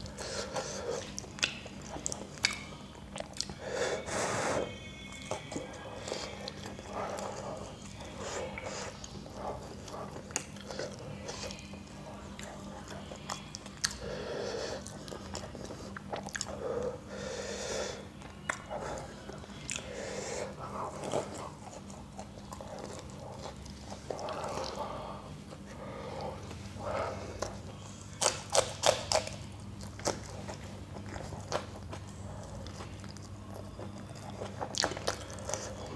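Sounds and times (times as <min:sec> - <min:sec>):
wet chewing and biting: 0:01.0 - 0:03.6, 0:14.8 - 0:16.6, 0:27.4 - 0:35.9.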